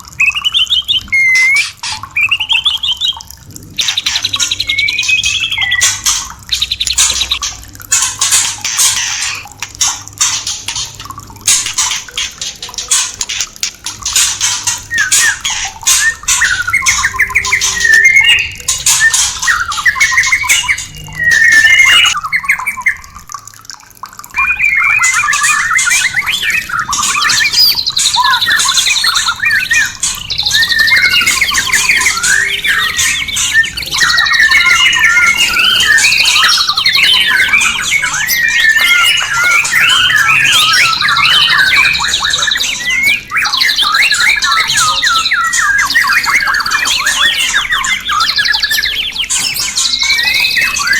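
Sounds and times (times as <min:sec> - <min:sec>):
bird singing whistled phrases: 0:00.2 - 0:06.1, 0:14.9 - 0:23.1, 0:24.3 - 0:50.9.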